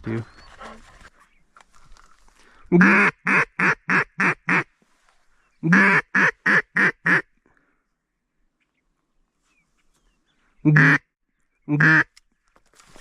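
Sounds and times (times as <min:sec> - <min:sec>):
duck call quacking: 0:02.7 - 0:04.7, 0:05.6 - 0:07.2, 0:10.7 - 0:11.0, 0:11.7 - 0:12.1.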